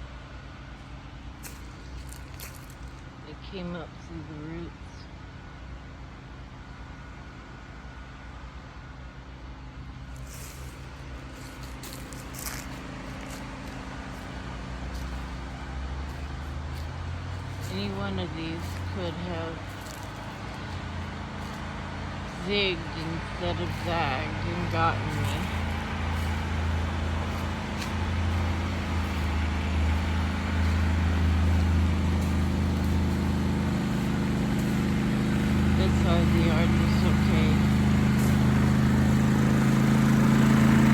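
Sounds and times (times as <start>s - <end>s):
generator engine humming: 0.0s - 40.9s
short rustling: 10.1s - 17.9s.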